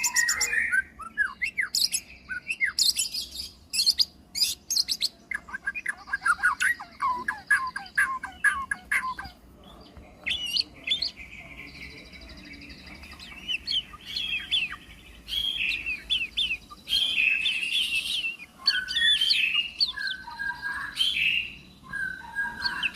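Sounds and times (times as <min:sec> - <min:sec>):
bird singing varied song: 0:00.0 - 0:22.9.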